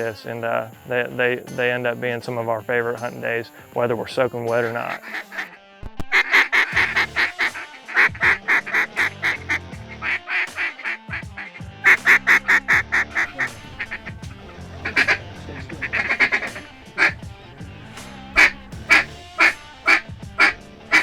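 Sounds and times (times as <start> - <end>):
background music: 0.0 - 21.0
duck quacking: 4.5 - 21.0.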